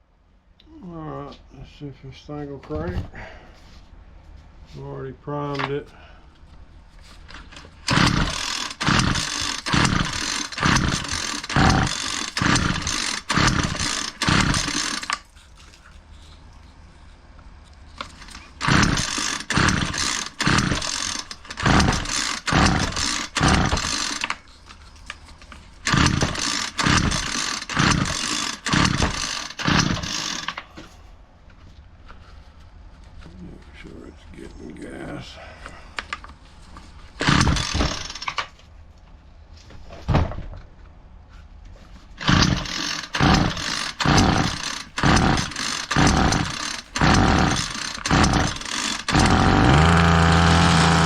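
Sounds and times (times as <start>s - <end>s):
string trimmer recoil starter pulls: 7.3s - 15.2s, 18.0s - 24.4s, 25.8s - 30.7s, 37.2s - 38.6s, 42.2s - 51.0s
engine cranking without starting: 7.4s - 15.3s, 18.0s - 24.4s, 25.8s - 30.7s, 37.2s - 38.6s, 42.2s - 51.0s.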